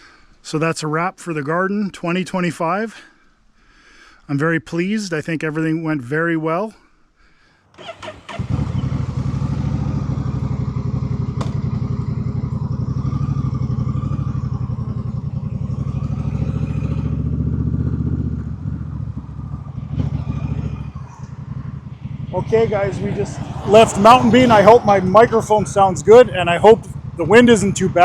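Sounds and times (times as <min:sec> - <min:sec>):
motorcycle engine running: 0:07.8 - 0:28.0.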